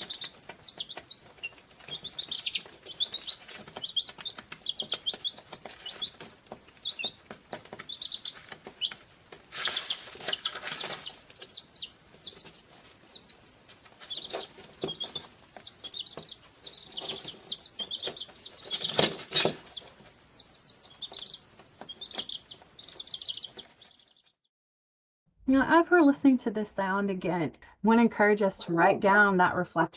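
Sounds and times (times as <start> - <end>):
rustling: 0.0 - 24.3
small birds chirping: 0.0 - 24.5.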